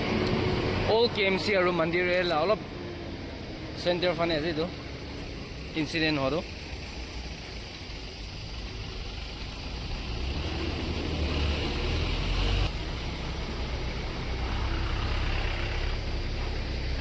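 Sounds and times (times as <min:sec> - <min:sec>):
traffic rumble: 0:00.0 - 0:17.0
heavy vehicle passing: 0:09.9 - 0:17.0.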